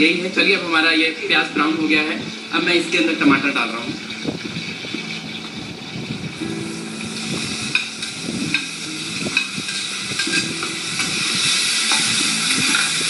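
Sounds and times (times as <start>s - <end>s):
vegetables sizzling in pan: 1.6s - 13.0s
ladle scraping and knocking pan: 7.7s - 13.0s.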